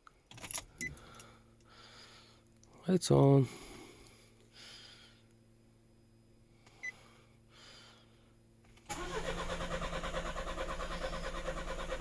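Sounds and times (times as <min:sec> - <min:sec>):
diesel engine cranking on starter: 0:08.9 - 0:12.0.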